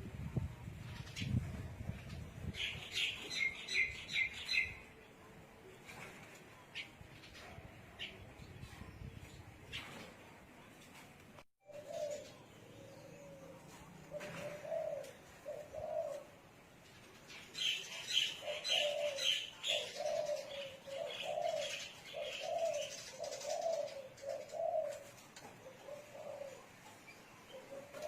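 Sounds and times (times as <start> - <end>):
doves cooing: 11.6 - 28.0.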